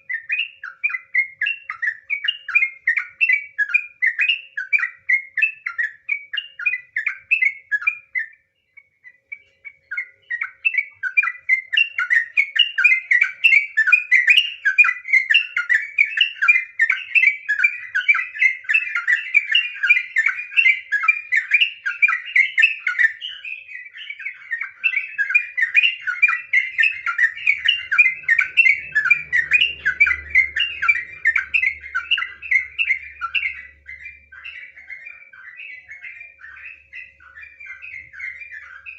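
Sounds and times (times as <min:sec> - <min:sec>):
bird singing chattering notes: 0:00.0 - 0:38.9
faint low hum: 0:24.2 - 0:38.9.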